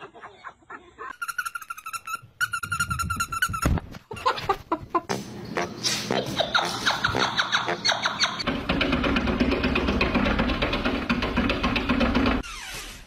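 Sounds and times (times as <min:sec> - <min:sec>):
bird trilling: 0:06.4 - 0:08.4
jumble of knocks: 0:08.4 - 0:12.4.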